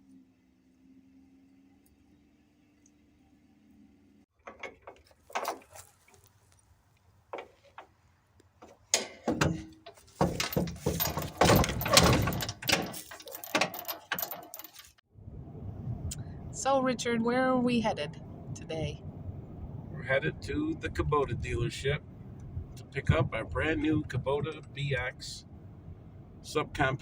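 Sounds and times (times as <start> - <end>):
clicks knocks and rattles: 4.4 - 6.2, 7.3 - 15.0.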